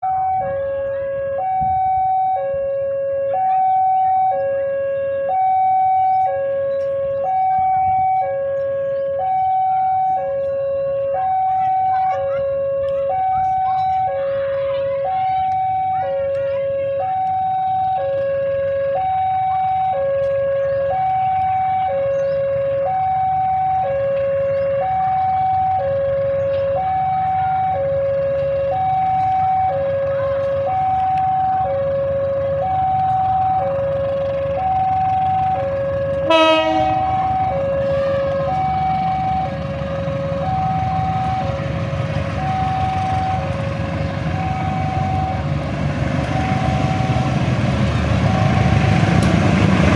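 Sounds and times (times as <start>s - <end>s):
approaching train rumble: 0.0s - 49.9s
two-tone railway crossing alarm: 0.0s - 49.9s.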